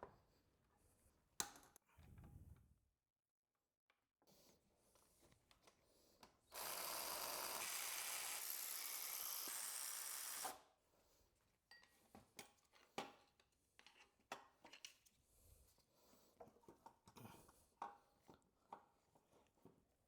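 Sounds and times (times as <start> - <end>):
power tool running: 6.5 - 10.6.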